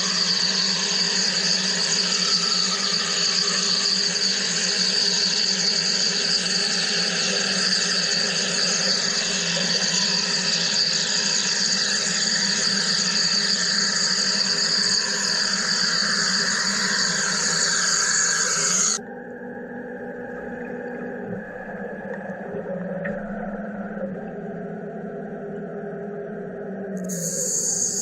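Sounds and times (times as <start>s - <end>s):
machine hissing: 11.7s - 19.0s, 27.0s - 28.0s.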